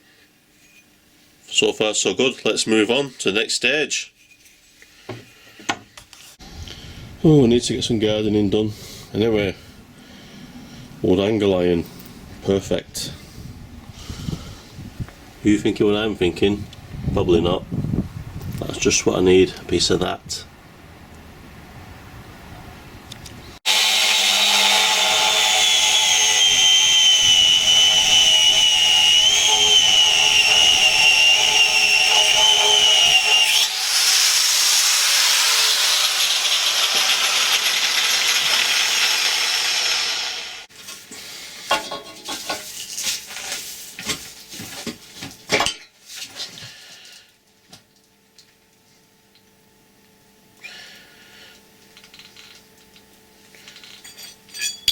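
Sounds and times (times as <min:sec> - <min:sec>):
power tool cutting steel: 0:23.7 - 0:40.7.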